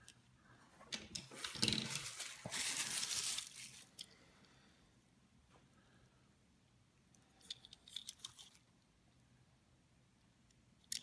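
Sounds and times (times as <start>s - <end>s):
faint clicks of toy cars: 7.1s - 8.6s, 10.5s - 11.0s.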